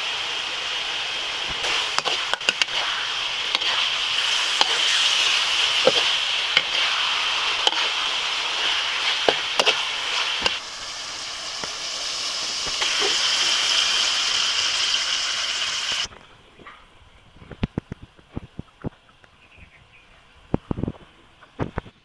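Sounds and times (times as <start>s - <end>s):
fish sizzling in hot oil: 0.0s - 16.1s
oil popping: 1.5s - 16.1s.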